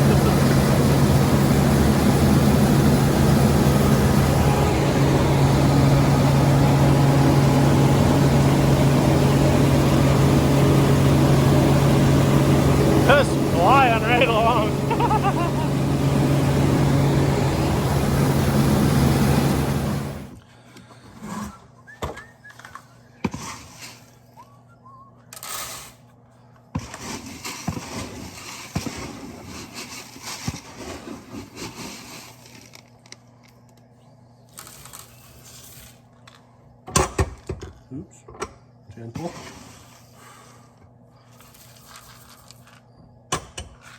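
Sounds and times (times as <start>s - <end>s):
combine harvester running: 0.0s - 20.4s.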